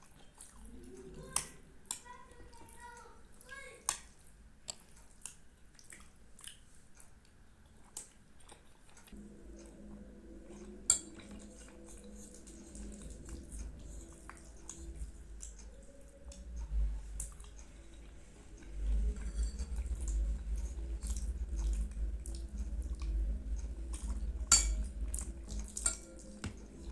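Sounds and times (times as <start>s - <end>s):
chewing: 0.0s - 26.9s
faint steady hum: 0.0s - 26.9s
spoon clicking against dish: 24.5s - 24.9s.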